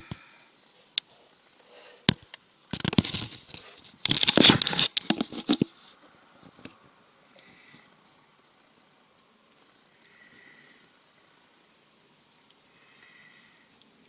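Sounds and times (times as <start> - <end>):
sharp clicks and knocks: 2.1 - 5.8
crinkling rustling: 2.1 - 6.8.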